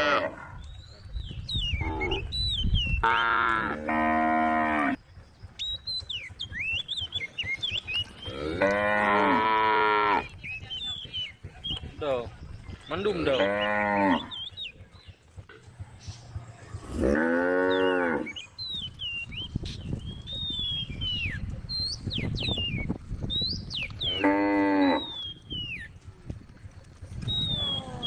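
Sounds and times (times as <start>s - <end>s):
cow mooing: 0.0s - 0.6s, 3.0s - 5.0s, 8.2s - 10.3s, 13.3s - 14.3s, 16.9s - 18.4s, 24.1s - 25.2s.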